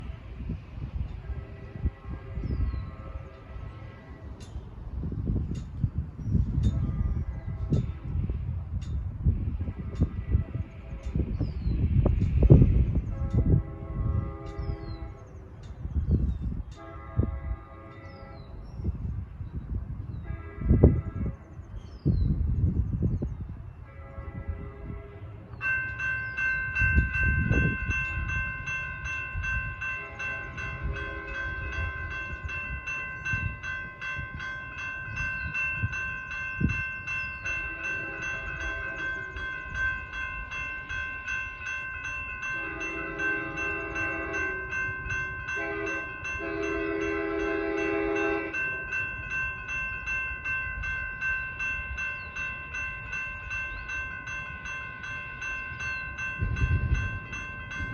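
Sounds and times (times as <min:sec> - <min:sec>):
railroad crossing bell ringing: 0:00.0 - 0:18.6, 0:23.7 - 0:57.9
low train rumble: 0:00.0 - 0:57.9
train horn blasts: 0:01.0 - 0:04.5, 0:06.6 - 0:08.4, 0:09.3 - 0:11.4, 0:12.4 - 0:15.4, 0:16.6 - 0:19.0, 0:20.1 - 0:21.5, 0:23.8 - 0:25.7, 0:26.9 - 0:33.8, 0:37.5 - 0:39.8, 0:42.4 - 0:49.0.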